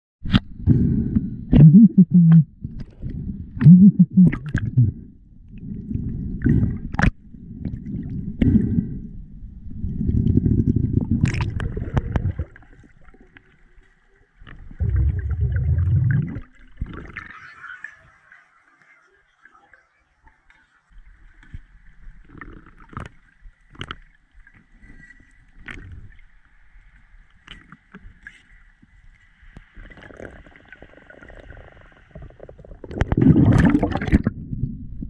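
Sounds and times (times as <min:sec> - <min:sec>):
underwater gurgling and bubbling: 0:00.4 - 0:09.0, 0:09.6 - 0:13.4, 0:14.5 - 0:17.5, 0:29.8 - 0:35.0.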